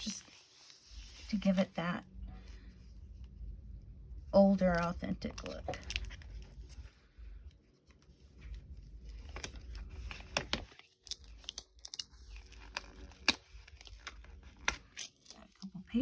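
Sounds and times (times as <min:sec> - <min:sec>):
paper pages rustling: 0:07.7 - 0:15.6
sharp paper snaps: 0:09.2 - 0:15.5.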